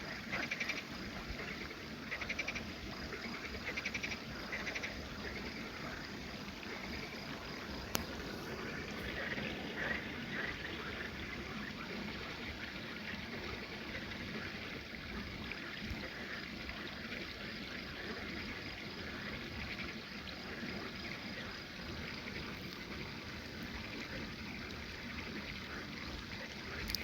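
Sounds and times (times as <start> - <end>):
pulsing insect chirp: 0.0 - 27.0
trickle of running water: 0.0 - 27.0.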